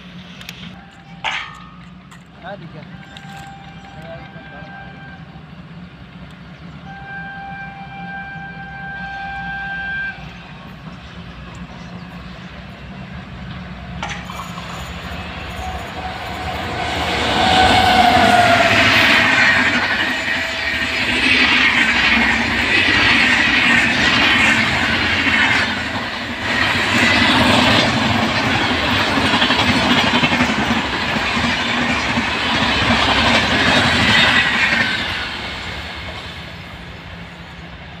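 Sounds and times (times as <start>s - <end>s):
train wheels clattering on rails: 0.0s - 4.7s, 10.2s - 38.0s
train horn: 0.7s - 1.6s, 2.8s - 5.4s, 6.8s - 10.5s, 15.4s - 21.4s.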